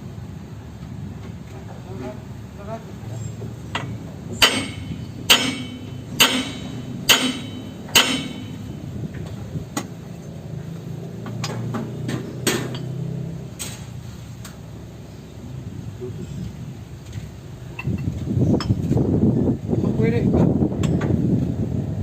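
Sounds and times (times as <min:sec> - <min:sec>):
hammer striking metal: 0:03.7 - 0:08.9.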